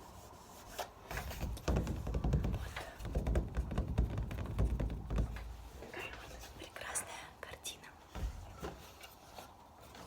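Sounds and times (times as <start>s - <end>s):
tapping at microphone: 1.3s - 6.2s
person whispering: 5.9s - 8.1s.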